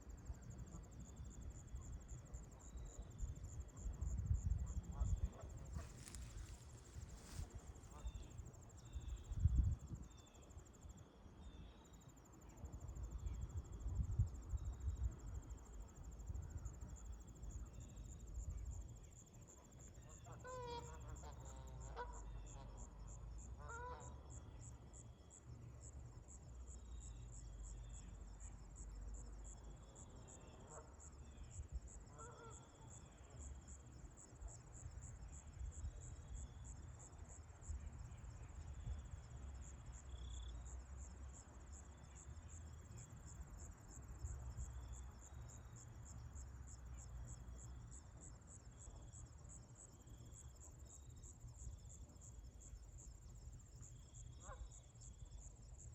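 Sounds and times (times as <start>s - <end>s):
distant geese honking: 20.2s - 22.3s.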